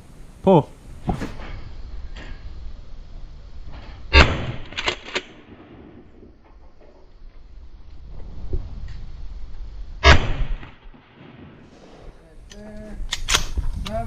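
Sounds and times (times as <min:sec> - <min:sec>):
shotgun shot: 0:04.1 - 0:06.2, 0:10.0 - 0:12.0
sharp snap: 0:12.5 - 0:14.0.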